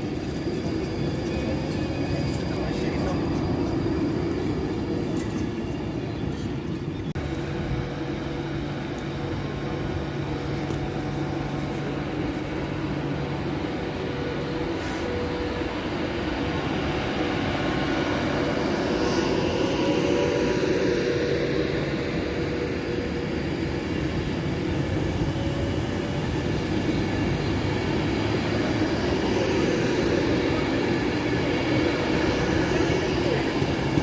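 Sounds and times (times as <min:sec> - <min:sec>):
train rail rumble: 0:00.0 - 0:34.0.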